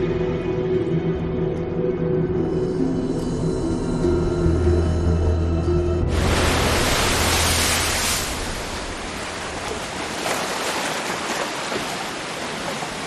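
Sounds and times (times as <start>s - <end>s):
low music: 0.0s - 8.2s
rushing water: 5.8s - 13.0s.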